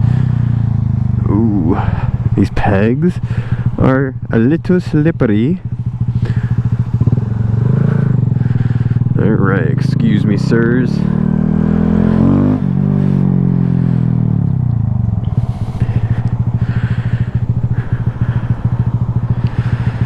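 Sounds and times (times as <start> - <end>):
motorcycle engine accelerating: 0.0 - 20.0
gear shift: 12.2 - 20.0.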